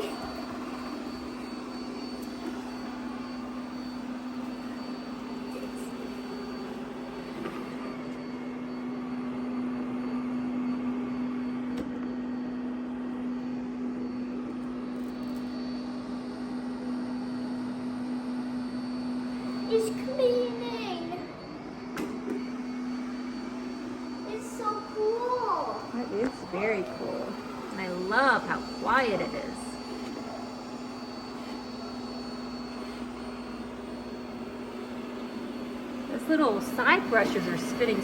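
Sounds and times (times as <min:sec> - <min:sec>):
faint high whine: 0:00.0 - 0:38.0
vacuum motor hum: 0:00.0 - 0:38.0.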